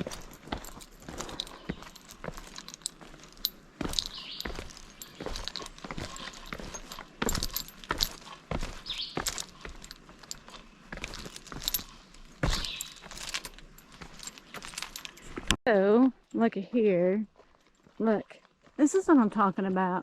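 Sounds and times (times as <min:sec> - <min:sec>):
footsteps on rocky trail: 0:00.0 - 0:15.6, 0:17.3 - 0:20.0
gear jingling: 0:00.0 - 0:15.6.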